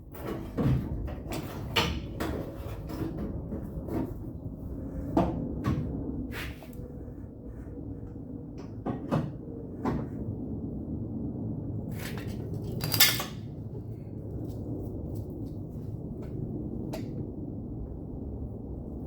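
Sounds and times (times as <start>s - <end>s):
steady low hum: 0.0s - 19.0s
metal tools clinking on sheet metal: 12.6s - 13.4s.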